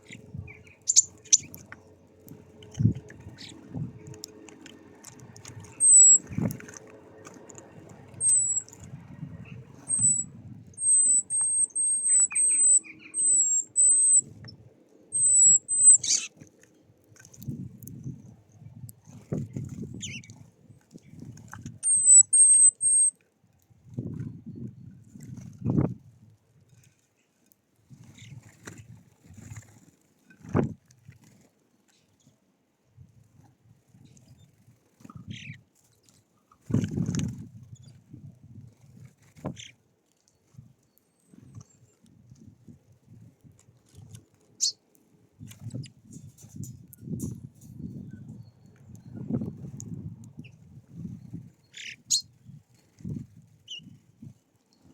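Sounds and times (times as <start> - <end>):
songbird whistling high notes: 5.8 - 6.2, 8.2 - 8.6, 9.9 - 14.2, 15.2 - 16.2, 21.8 - 23.1.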